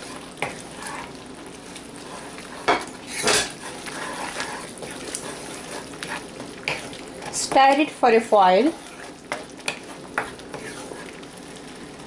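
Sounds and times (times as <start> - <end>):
spatula scraping a wok: 0.0 - 11.3
low frying sizzle: 0.0 - 12.0.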